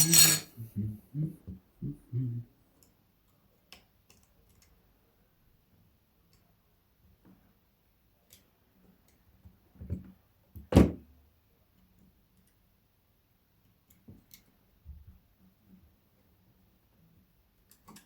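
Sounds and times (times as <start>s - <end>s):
small clicks of tools handled: 17.7s - 18.0s.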